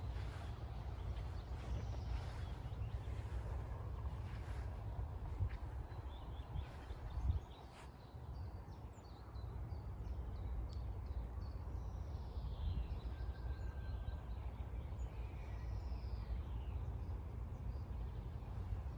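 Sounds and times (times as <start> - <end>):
steady low rumble: 0.0 - 7.7.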